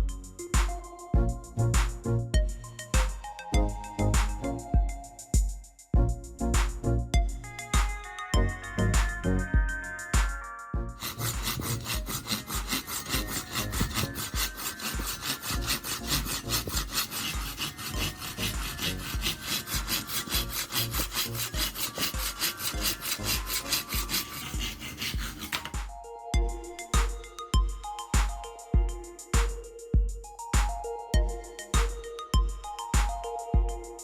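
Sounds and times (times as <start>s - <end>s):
hand saw cutting wood: 11.0s - 25.8s.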